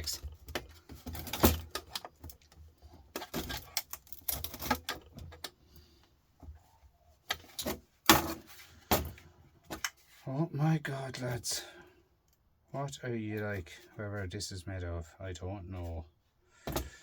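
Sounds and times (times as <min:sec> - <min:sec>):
metal case clicks and knocks: 0:00.4 - 0:02.5.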